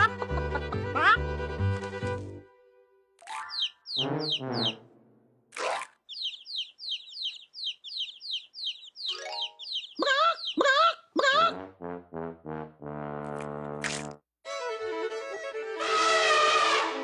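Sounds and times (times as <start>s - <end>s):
high falling bird-like chirps: 3.3s - 4.8s, 5.7s - 11.5s
loud wavering calls: 6.1s - 11.5s.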